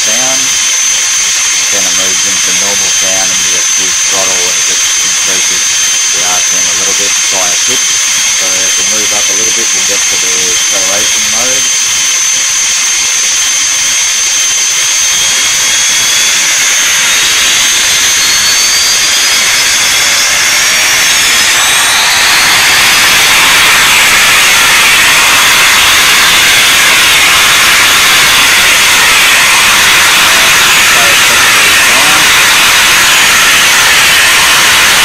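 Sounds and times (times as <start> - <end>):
synthesized jet turbine whine: 0.0 - 35.0.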